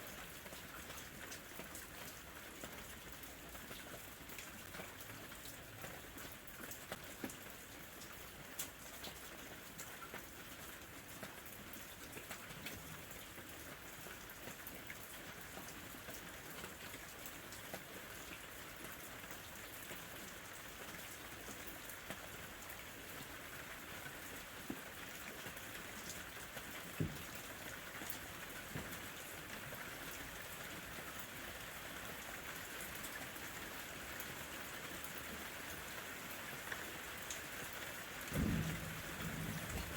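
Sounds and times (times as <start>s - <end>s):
gentle rain hissing: 0.0s - 39.9s
raindrops tapping: 26.2s - 29.6s, 38.2s - 39.9s.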